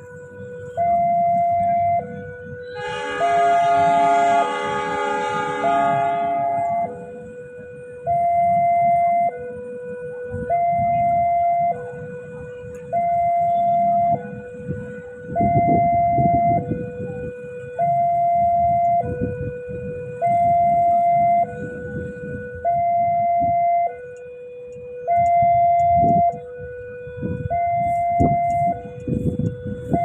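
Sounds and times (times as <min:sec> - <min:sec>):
level crossing two-tone alarm: 0:00.0 - 0:30.0
low rumble of traffic: 0:00.0 - 0:30.0.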